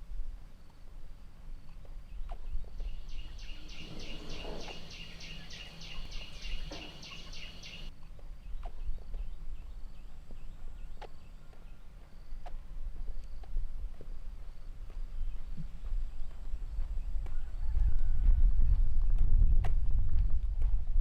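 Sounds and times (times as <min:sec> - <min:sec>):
faint bird chirps: 0:01.6 - 0:12.4
bird chirping rapidly: 0:02.2 - 0:09.0.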